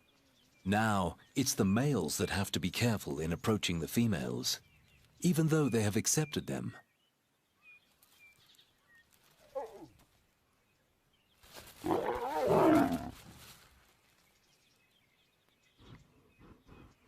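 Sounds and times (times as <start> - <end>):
lion snarling: 11.8 - 13.2.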